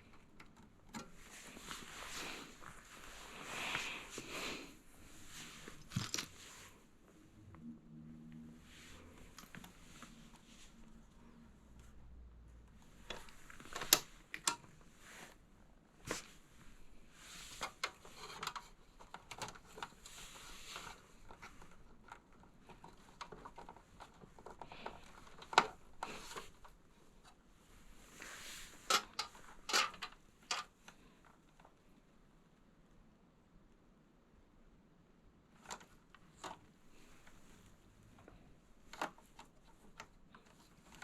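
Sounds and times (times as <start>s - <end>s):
soft rustling: 0.0s - 7.2s, 12.8s - 31.9s.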